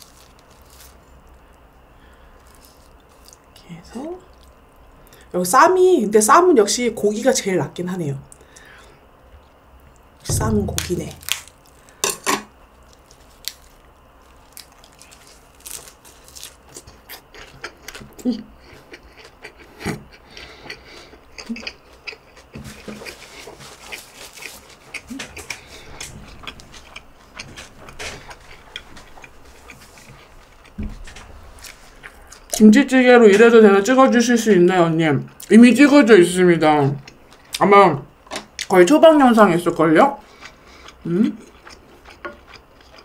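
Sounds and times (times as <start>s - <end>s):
person chewing crunchy food: 0.0s - 3.6s, 9.4s - 32.6s, 40.2s - 43.0s.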